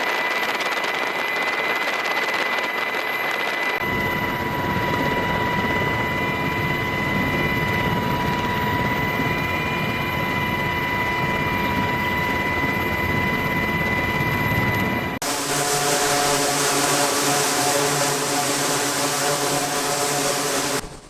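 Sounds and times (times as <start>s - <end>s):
aircraft engine rush: 0.0s - 21.0s
high steady whine: 10.6s - 21.0s.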